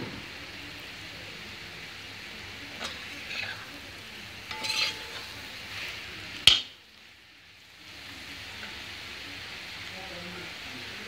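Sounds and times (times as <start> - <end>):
potatoes sizzling in a pan: 0.0 - 11.0
metal spatula scraping: 2.8 - 3.7, 4.4 - 6.7.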